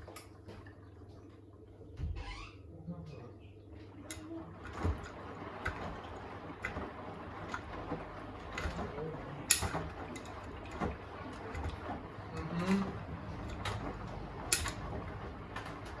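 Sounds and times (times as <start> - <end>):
washing machine motor hum: 0.0 - 16.0
laundry sloshing and knocking: 3.7 - 16.0.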